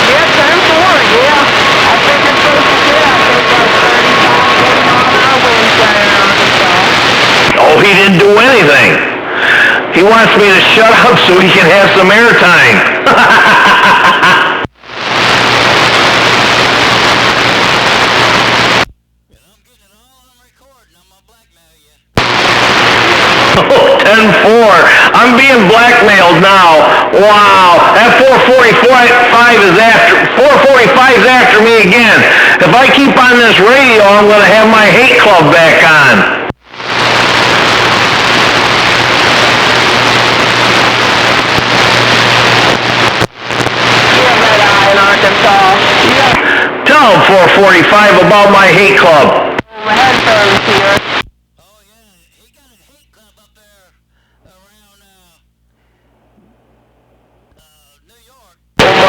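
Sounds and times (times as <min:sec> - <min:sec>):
radio static hiss: 0:00.0 - 0:59.0
low steady hum: 0:49.4 - 0:59.0.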